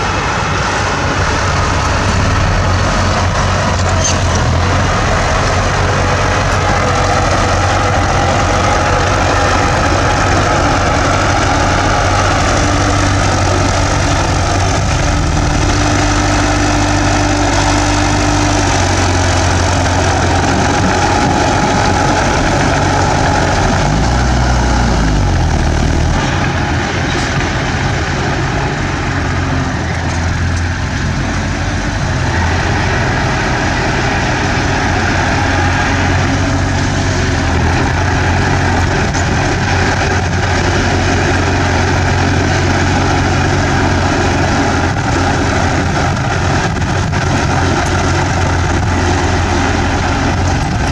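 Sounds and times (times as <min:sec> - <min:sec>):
bulldozer diesel engine running: 0:00.0 - 0:50.9.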